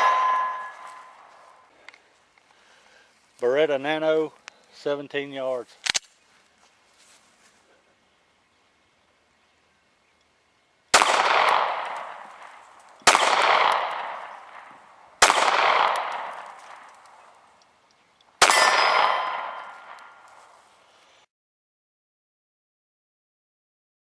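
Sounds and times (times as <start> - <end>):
pistol shots with echo: 0.0 - 1.5, 10.9 - 17.2, 18.4 - 20.5.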